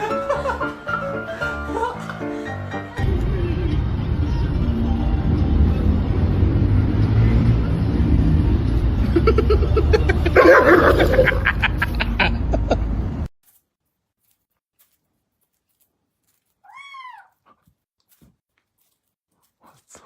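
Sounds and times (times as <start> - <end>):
steady low rumble: 3.0 - 10.4.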